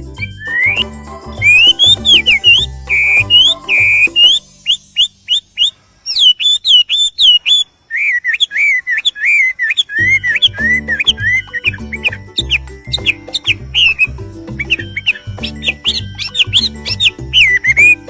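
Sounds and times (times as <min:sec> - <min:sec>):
background music with low beat: 0:00.0 - 0:05.4, 0:10.0 - 0:18.0
songbird whistling: 0:00.0 - 0:07.6, 0:10.0 - 0:18.0.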